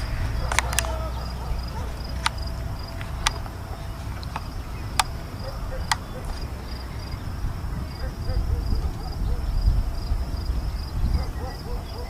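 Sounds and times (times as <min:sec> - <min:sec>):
sharp clicks: 0:00.0 - 0:06.8
insects chirping: 0:00.0 - 0:12.0
steady low rumble: 0:00.0 - 0:12.0.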